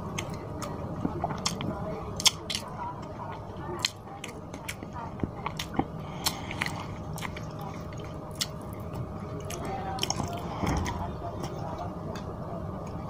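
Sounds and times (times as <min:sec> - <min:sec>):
steady low hum: 0:00.0 - 0:13.0
chewing and wet mouth clicks: 0:00.2 - 0:02.7, 0:03.8 - 0:08.7.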